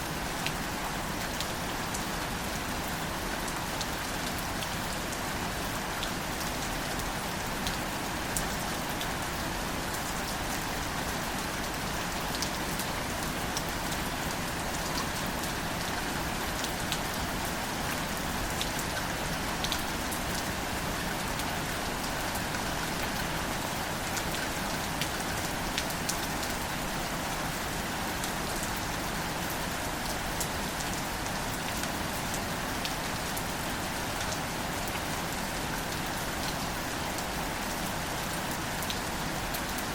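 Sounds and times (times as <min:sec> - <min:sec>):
gentle rain on plants: 0:00.0 - 0:39.9.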